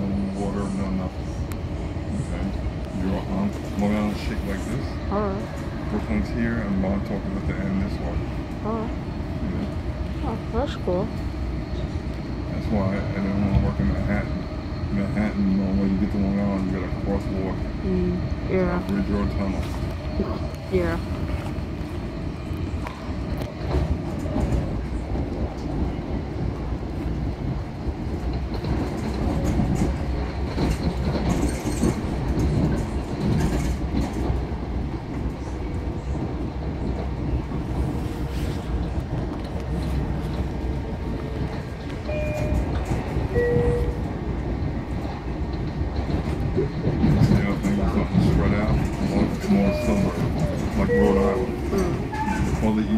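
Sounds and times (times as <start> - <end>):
train wheels rumbling on rails: 0.0 - 52.9
train wheel clicks: 27.5 - 35.3, 38.8 - 52.8.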